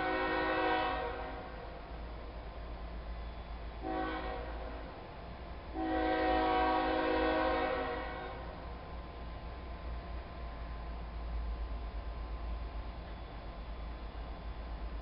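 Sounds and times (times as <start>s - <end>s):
locomotive air horn blasts: 0.0s - 1.6s, 3.8s - 4.8s, 5.7s - 8.5s.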